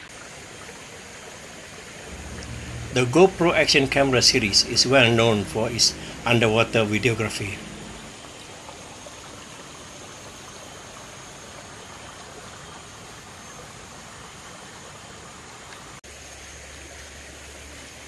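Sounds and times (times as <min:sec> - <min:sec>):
stream flowing: 0:00.0 - 0:18.0
low rumble: 0:02.1 - 0:08.1.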